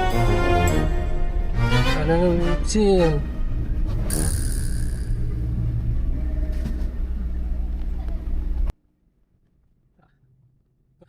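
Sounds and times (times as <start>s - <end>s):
car driving rumble: 1.3s - 8.7s.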